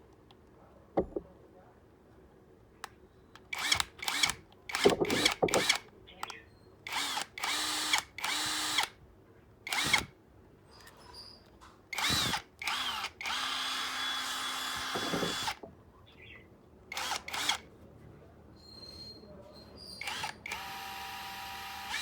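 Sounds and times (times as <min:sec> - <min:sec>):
cordless drill motor whine: 0:03.6 - 0:05.8, 0:06.9 - 0:08.9, 0:09.7 - 0:10.1, 0:12.0 - 0:15.6, 0:17.0 - 0:17.6, 0:20.0 - 0:22.0.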